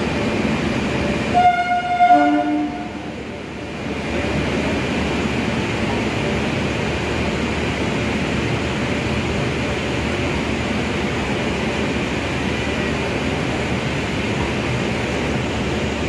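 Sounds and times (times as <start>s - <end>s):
train coaches rumbling: 0.0s - 16.0s.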